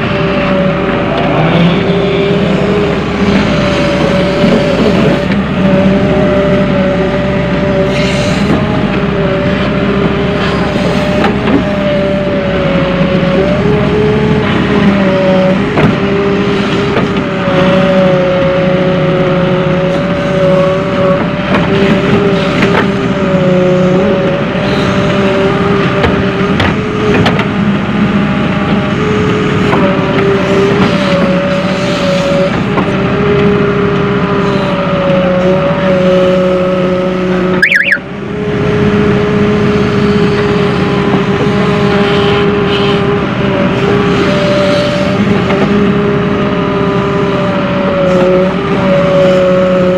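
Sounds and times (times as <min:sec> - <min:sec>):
diesel engine and hydraulics whine: 0:00.0 - 0:49.9
brief high chirp: 0:37.6 - 0:38.0.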